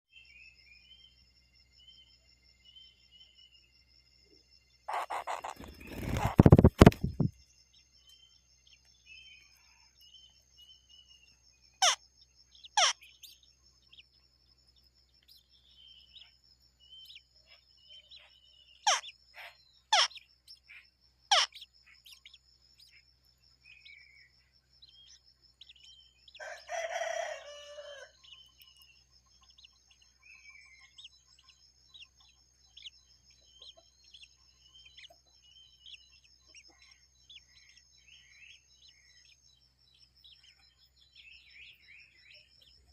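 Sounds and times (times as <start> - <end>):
small birds chirping: 0.0 - 42.9
sharp downward-sweeping bird calls: 4.9 - 7.3, 12.6 - 13.2, 18.8 - 19.1
rooster crowing: 26.4 - 28.3.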